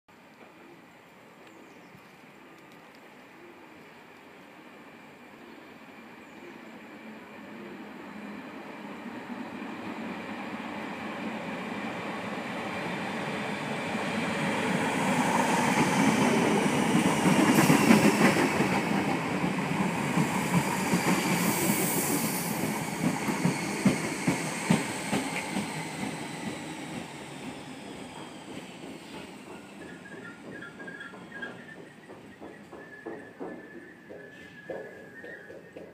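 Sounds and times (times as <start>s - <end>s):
passenger train passing: 0.2s - 35.9s
wheels clacking over rail joints: 28.1s - 35.9s
wheel squeal: 29.5s - 35.7s.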